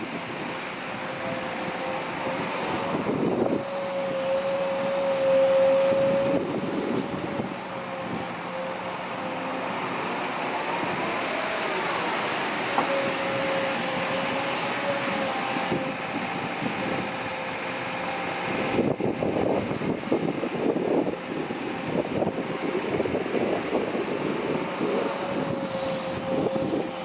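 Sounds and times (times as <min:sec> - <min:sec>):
diesel engine with whine: 0:00.0 - 0:27.0.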